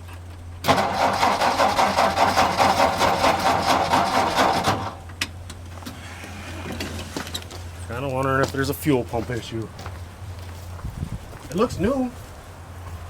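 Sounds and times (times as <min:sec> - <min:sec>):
truck engine running rough: 0:00.6 - 0:07.2.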